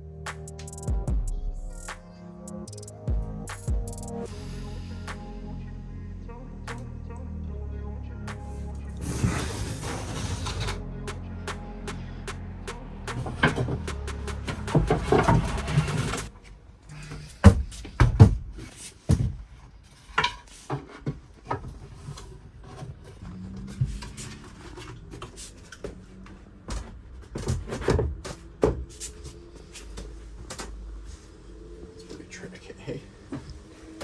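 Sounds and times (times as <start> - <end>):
music track: 0.0 - 16.3.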